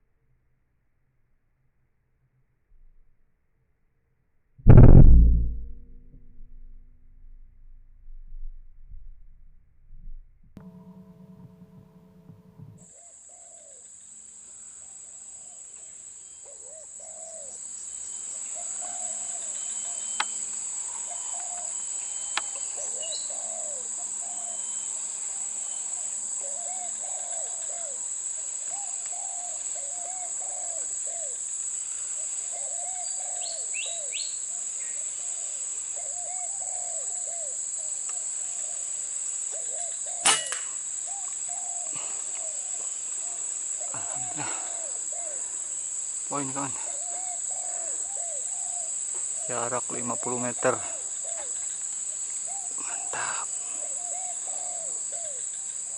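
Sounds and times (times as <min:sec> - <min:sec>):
air rifle shot: 0:04.7 - 0:08.4, 0:40.2 - 0:40.7
dove-like coos: 0:16.5 - 0:17.6, 0:18.4 - 0:20.2, 0:22.6 - 0:40.4, 0:41.0 - 0:45.9, 0:46.6 - 0:49.6, 0:50.8 - 0:55.9
high-pitched insect drone: 0:41.9 - 0:52.2.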